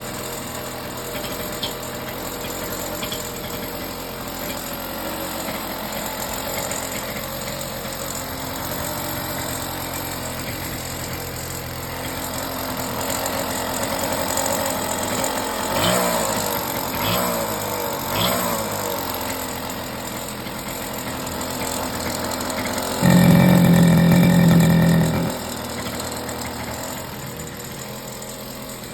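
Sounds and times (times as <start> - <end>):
two-stroke engine idling: 0.0 - 28.9
engine revving: 13.8 - 19.4, 21.9 - 27.2.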